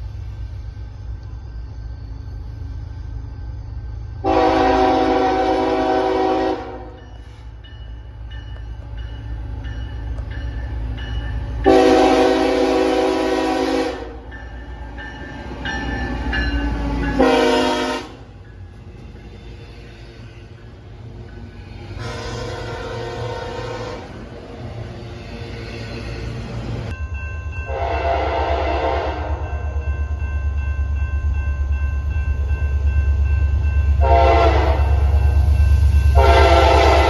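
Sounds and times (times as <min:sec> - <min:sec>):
passing train rumble: 0:00.0 - 0:37.0
diesel locomotive horn blasts: 0:04.2 - 0:07.4, 0:11.6 - 0:14.3, 0:16.8 - 0:18.3, 0:21.9 - 0:24.4, 0:27.7 - 0:29.8, 0:34.0 - 0:35.5, 0:36.1 - 0:37.0.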